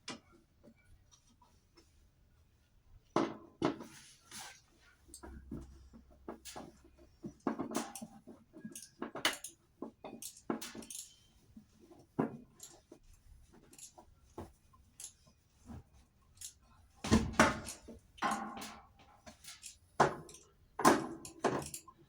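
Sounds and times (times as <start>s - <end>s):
metal tools clinking: 10.1s - 11.3s.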